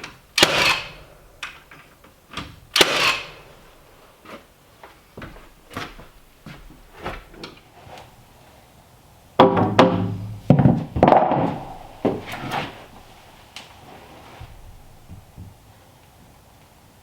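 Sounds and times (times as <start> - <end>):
heavy wooden knocks and thuds: 9.4 - 12.6.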